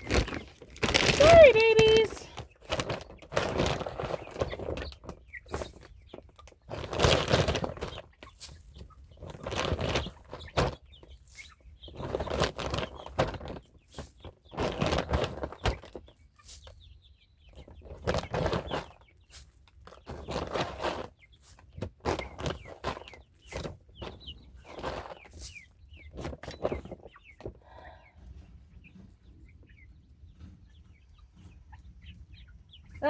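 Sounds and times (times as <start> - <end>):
rustling and handling noise: 0.0 - 16.8, 17.8 - 29.1
chickens clucking: 0.0 - 33.0.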